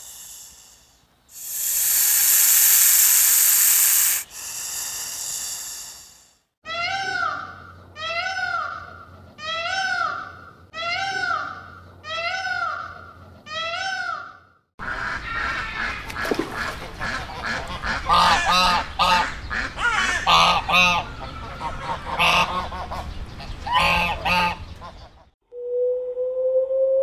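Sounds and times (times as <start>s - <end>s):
ducks quacking: 14.8s - 25.3s.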